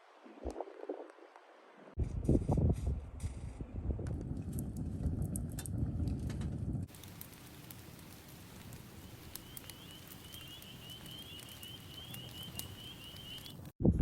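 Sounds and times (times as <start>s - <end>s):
wood fire crackling and popping: 4.2s - 13.8s
high fluttering whistle: 9.3s - 13.6s.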